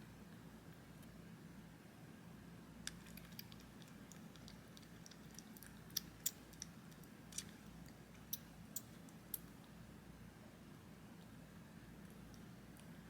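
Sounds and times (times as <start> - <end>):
kitten suckling clicks and smacks: 2.8 - 9.6.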